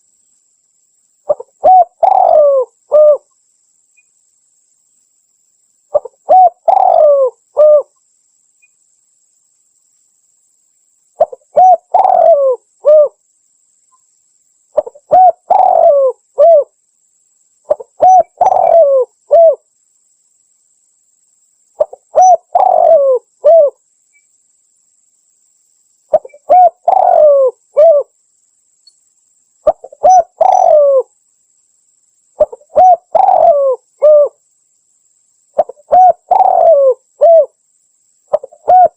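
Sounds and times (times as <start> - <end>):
dove cooing: 1.3 - 3.3, 5.9 - 7.9, 11.2 - 13.2, 14.8 - 16.7, 17.7 - 19.6, 21.8 - 23.8, 26.1 - 28.1, 29.6 - 31.1, 32.4 - 34.4, 35.6 - 37.6, 38.3 - 38.9.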